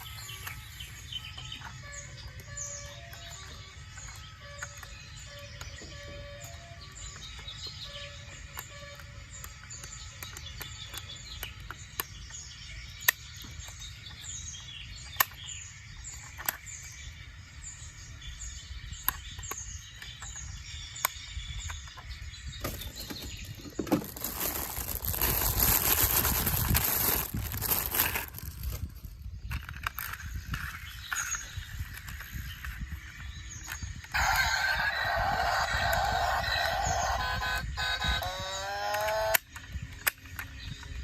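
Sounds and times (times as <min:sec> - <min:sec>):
bird chirping: 0:00.0 - 0:41.0.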